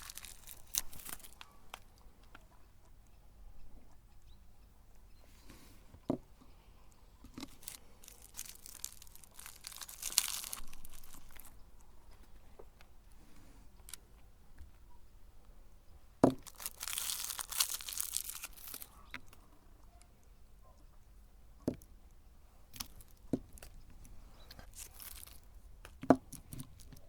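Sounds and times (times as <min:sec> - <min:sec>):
cookies crunching in grinder: 0:00.0 - 0:01.5, 0:07.4 - 0:11.6, 0:16.3 - 0:19.2, 0:24.6 - 0:25.5.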